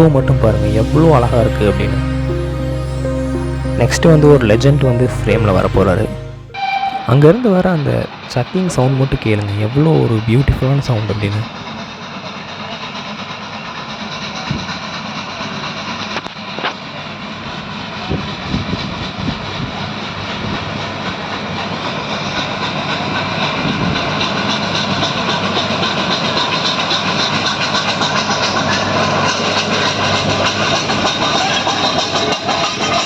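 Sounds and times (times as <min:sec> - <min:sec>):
steam locomotive chugging: 0:06.6 - 0:33.0.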